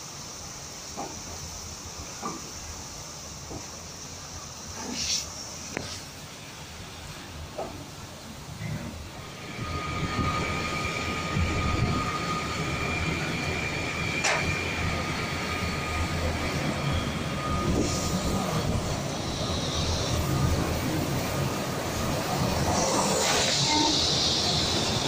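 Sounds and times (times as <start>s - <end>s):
train wheels rumbling on rails: 0.0s - 3.8s, 7.1s - 25.0s
hiss: 0.0s - 25.0s
high whine: 9.2s - 25.0s.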